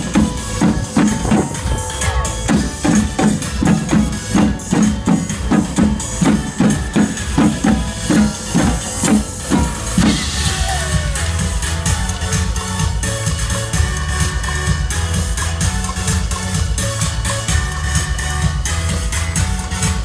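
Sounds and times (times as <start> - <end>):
low drum hits: 0.0 - 11.6
live band music: 0.0 - 20.0.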